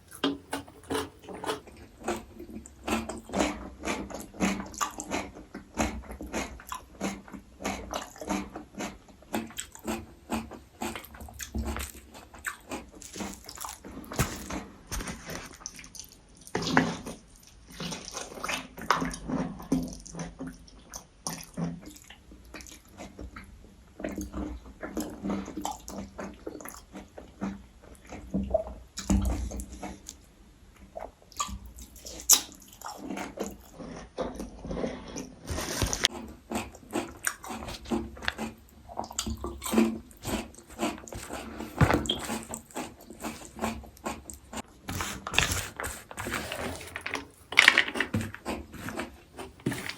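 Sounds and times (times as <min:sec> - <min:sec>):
wet chewing: 0:00.0 - 0:19.2, 0:30.9 - 0:49.9.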